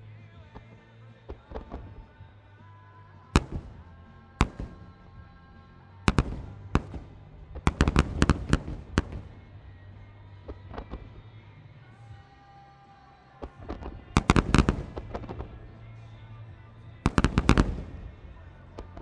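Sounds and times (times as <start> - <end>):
music: 0.0 - 19.0
firework shells bursting: 3.4 - 9.8, 14.2 - 15.8, 17.1 - 19.0.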